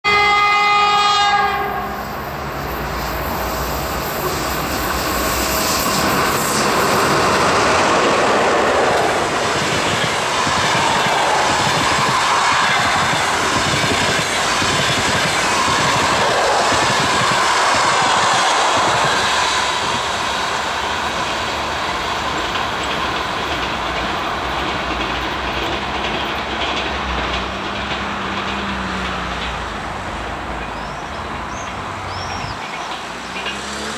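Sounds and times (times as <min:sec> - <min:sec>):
locomotive horn: 0:00.0 - 0:02.0
train wheels rushing on rails: 0:00.1 - 0:33.9.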